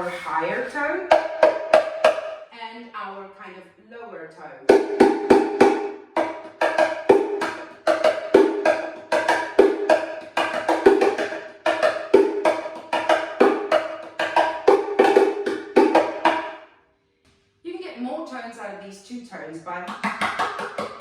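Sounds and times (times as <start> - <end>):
cajon played by hand: 1.0 - 2.3, 4.7 - 16.6, 19.9 - 21.0.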